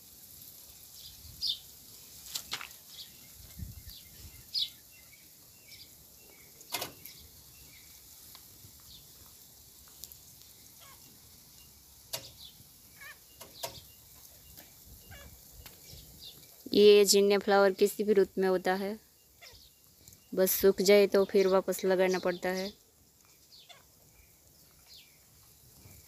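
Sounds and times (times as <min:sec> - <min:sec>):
birds chirping: 0:00.7 - 0:26.0
sharp clicks or rustles: 0:02.2 - 0:02.9.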